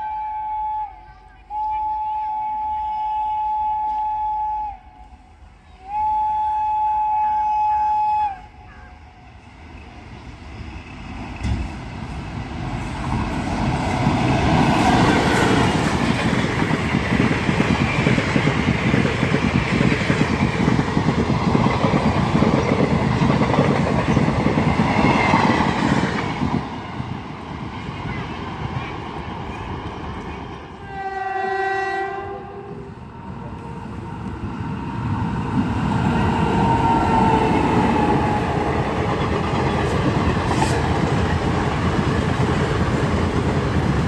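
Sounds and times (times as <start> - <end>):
train horn: 0.0 - 9.4, 30.8 - 34.3, 36.6 - 38.6
passing train wheels clattering: 9.4 - 44.0.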